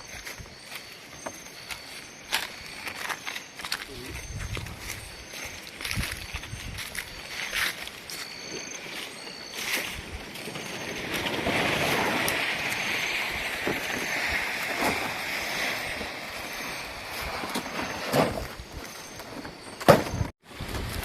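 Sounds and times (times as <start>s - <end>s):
wind rushing through trees: 8.9s - 18.0s.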